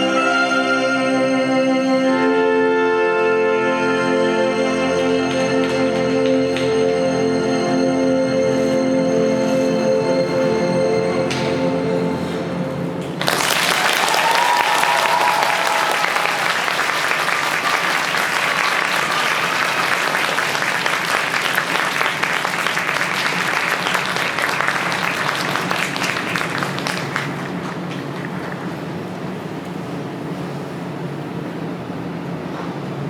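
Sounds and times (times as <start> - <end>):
crowd applauding: 13.1 - 29.2
crowd cheering: 13.2 - 28.9.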